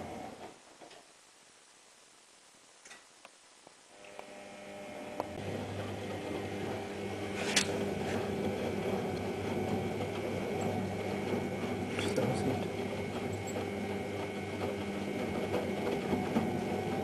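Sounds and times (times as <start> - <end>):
washing machine drum humming: 4.6 - 17.0.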